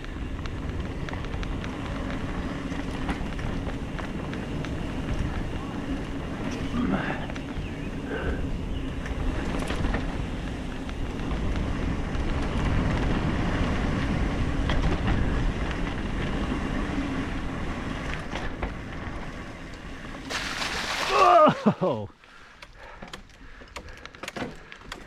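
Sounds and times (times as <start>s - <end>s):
tyres rolling on dirt: 0.0s - 22.2s
bike rattling: 0.0s - 25.0s
small clicks and knocks: 22.6s - 25.0s.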